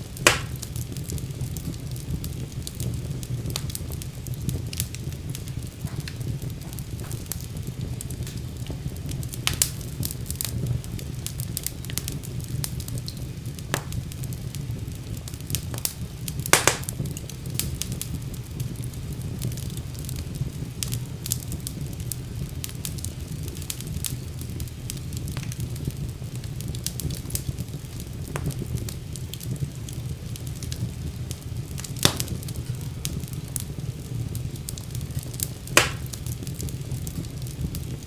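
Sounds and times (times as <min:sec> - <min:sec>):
fire crackling and popping: 0:00.0 - 0:38.0
fire rumbling: 0:00.0 - 0:38.0.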